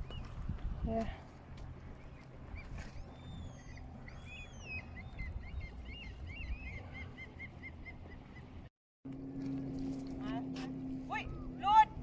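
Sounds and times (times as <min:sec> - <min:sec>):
low rumble of wind: 0:00.0 - 0:12.0
birds chirping: 0:01.6 - 0:08.7
bird whistles gliding downward: 0:02.6 - 0:08.4.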